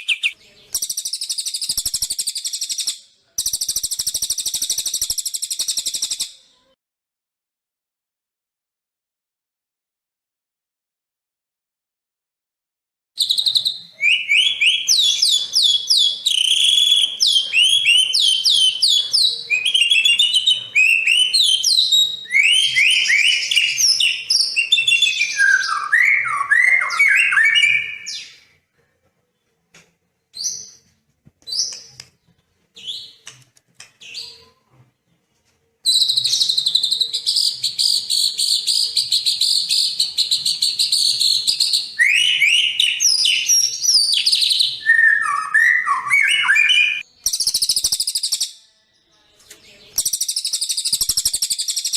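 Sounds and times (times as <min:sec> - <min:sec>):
birds whistling phrases: 0:00.0 - 0:06.4, 0:13.2 - 0:28.5, 0:35.8 - 0:48.6, 0:49.9 - 0:51.9
bird chirps: 0:00.0 - 0:06.7, 0:13.2 - 0:28.6, 0:30.2 - 0:35.2, 0:35.8 - 0:51.9
high twittering chatter: 0:00.0 - 0:06.8, 0:35.8 - 0:51.9.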